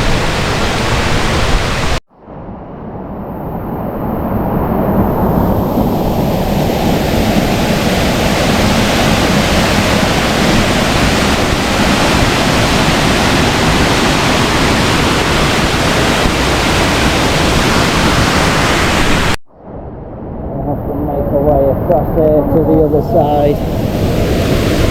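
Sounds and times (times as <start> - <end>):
waterfall roaring: 0.0 - 2.0, 6.0 - 19.4.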